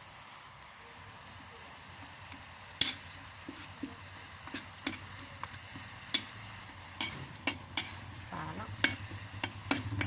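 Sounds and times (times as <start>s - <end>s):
spoon scraping cooking pot: 7.0s - 10.0s.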